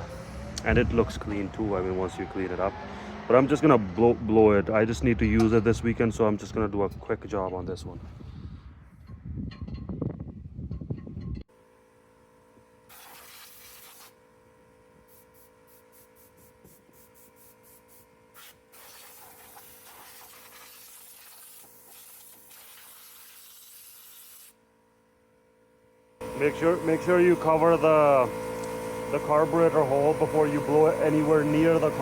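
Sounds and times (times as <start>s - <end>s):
compressed air blow gun hissing: 12.9s - 14.2s, 15.0s - 24.6s.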